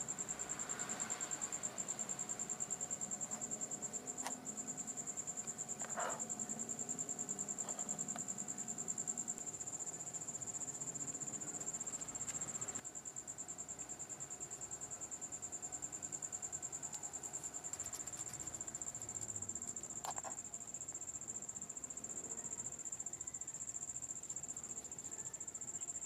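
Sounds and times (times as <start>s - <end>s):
insect trilling: 3.1s - 9.4s.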